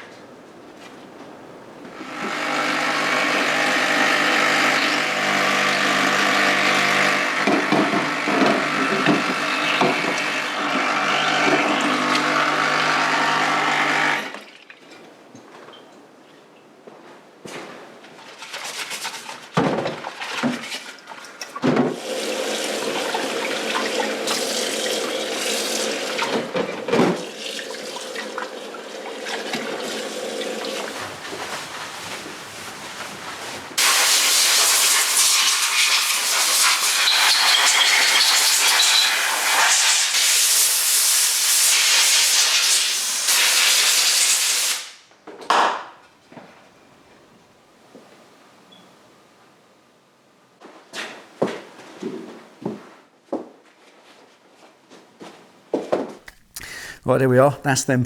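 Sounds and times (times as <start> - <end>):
loud steady hiss: 33.8 - 45.0.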